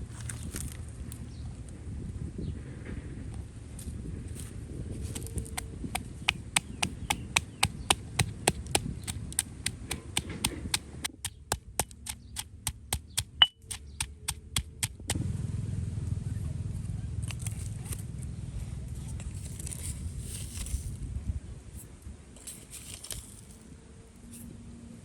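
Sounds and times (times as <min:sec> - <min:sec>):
knife chopping on cutting board: 0:05.5 - 0:15.1.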